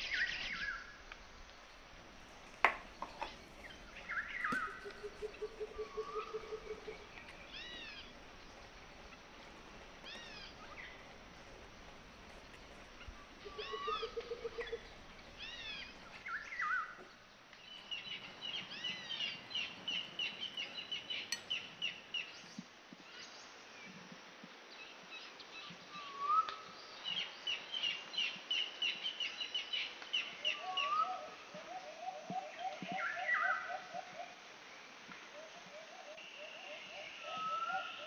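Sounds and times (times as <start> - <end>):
birds singing: 0.0 - 22.6.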